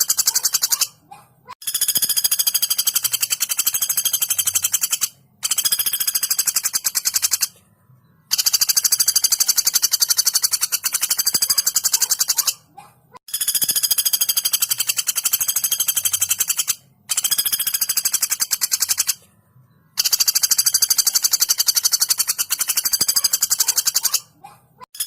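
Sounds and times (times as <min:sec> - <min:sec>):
woodpecker rattling call: 0:00.0 - 0:07.6, 0:08.3 - 0:19.2, 0:19.9 - 0:25.0.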